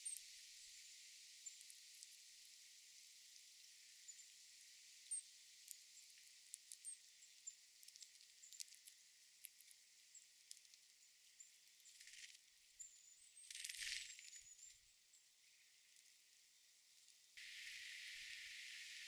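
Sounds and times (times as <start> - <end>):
steady high hiss: 17.4 - 19.0.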